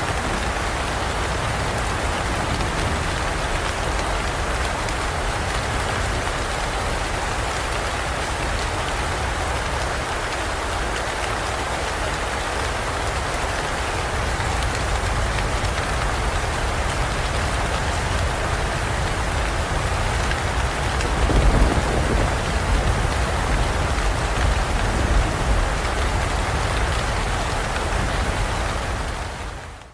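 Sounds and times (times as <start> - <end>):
heavy rain falling: 0.0 - 29.9
thunder rumble: 14.9 - 29.7.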